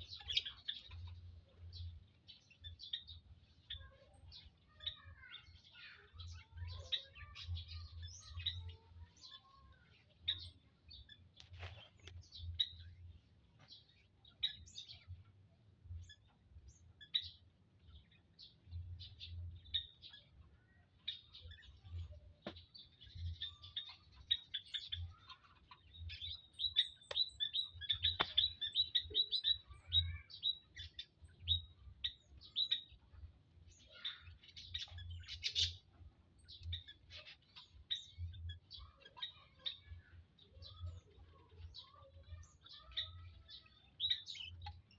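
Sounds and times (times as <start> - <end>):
quail chirping: 23.2 - 33.2, 33.9 - 44.9.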